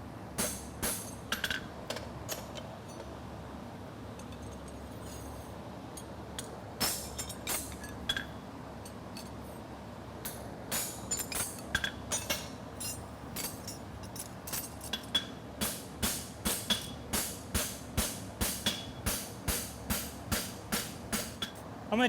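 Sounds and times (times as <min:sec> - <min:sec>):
hammer striking steel on anvil: 0:15.0 - 0:21.6.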